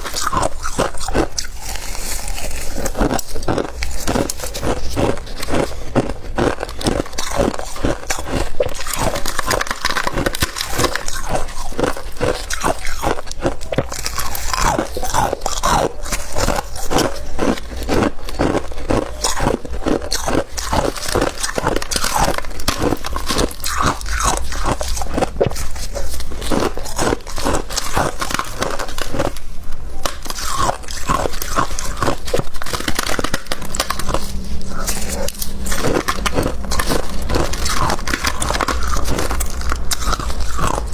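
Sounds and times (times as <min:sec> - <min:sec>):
frost being chewed crunching: 0:00.0 - 0:40.9.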